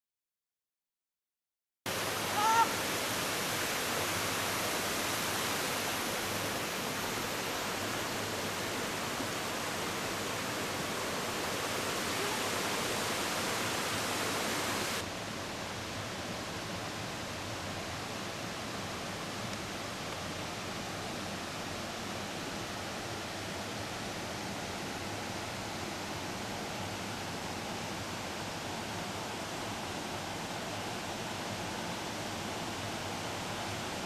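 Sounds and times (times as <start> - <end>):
river and waterfall roaring: 1.9 - 34.0
short high call: 2.3 - 2.8.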